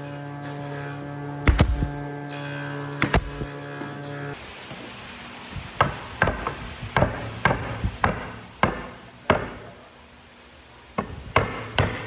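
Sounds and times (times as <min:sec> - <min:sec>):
sharp strikes: 0:00.4 - 0:04.4.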